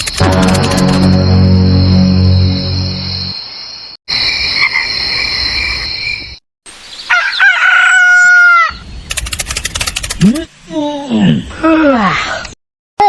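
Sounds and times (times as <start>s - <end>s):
insects chirping: 0.8s - 7.1s
rooster crowing: 7.1s - 8.8s.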